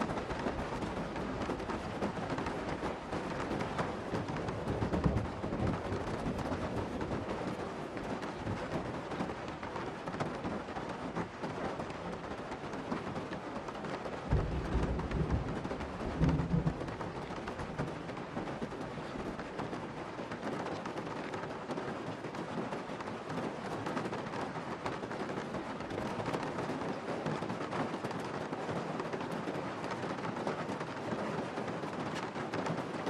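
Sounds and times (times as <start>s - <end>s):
low thunder rumbles: 0.0s - 9.3s, 14.2s - 20.0s
heavy rain: 0.0s - 33.0s.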